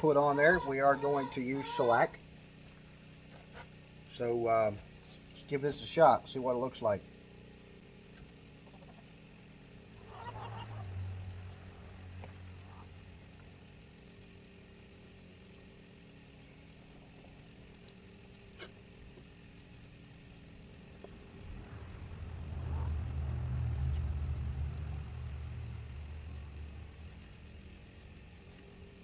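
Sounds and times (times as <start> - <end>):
woodturning lathe motor hum: 0.0 - 2.2, 16.1 - 29.0
low rumble: 20.5 - 29.0.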